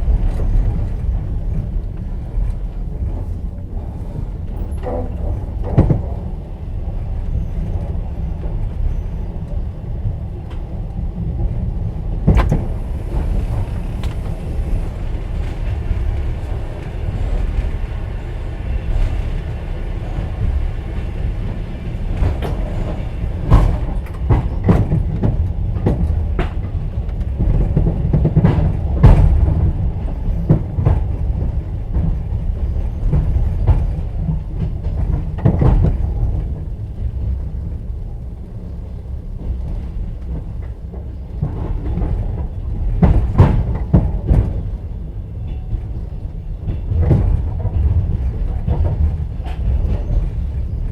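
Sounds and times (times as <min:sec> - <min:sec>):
low rumble of train wheels: 0:00.0 - 0:50.9
sharp knocks and clacks: 0:41.4 - 0:44.7.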